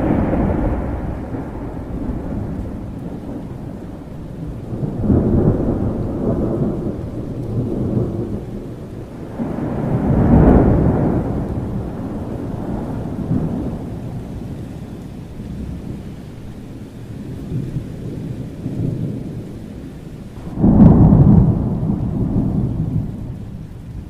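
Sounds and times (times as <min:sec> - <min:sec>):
loud thunderclap: 0:00.0 - 0:14.5, 0:20.4 - 0:24.0
rolling thunder: 0:00.0 - 0:24.0
steady rain: 0:00.0 - 0:24.0.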